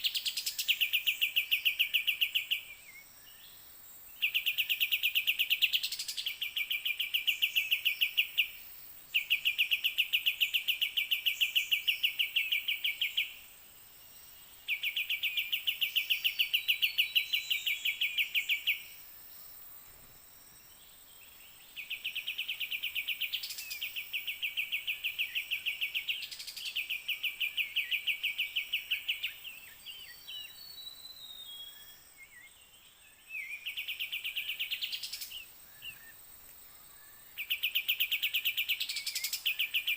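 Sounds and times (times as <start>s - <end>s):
bird chirps: 0.0s - 36.2s, 36.8s - 39.9s
short whistled bird calls: 37.0s - 39.9s.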